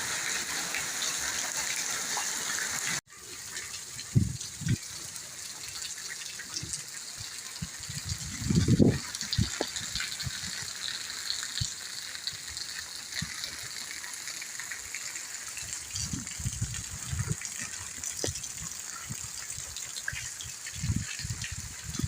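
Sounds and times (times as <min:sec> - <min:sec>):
running water hiss: 0:00.0 - 0:22.0
steady rain: 0:00.0 - 0:22.0.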